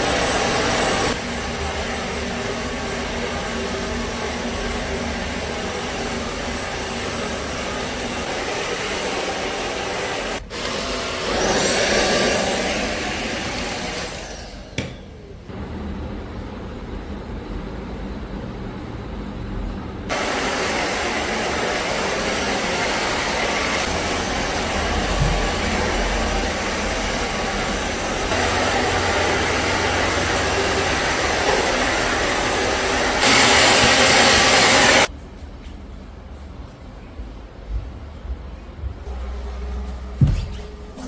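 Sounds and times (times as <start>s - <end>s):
small electric appliance motor: 7.4s - 15.0s.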